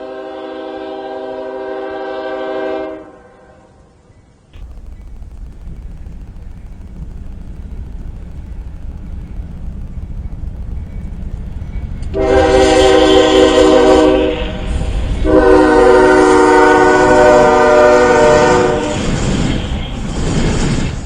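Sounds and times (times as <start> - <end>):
train horn blasts: 0.0 - 4.0, 12.1 - 19.2
moving train rumble: 3.9 - 21.0.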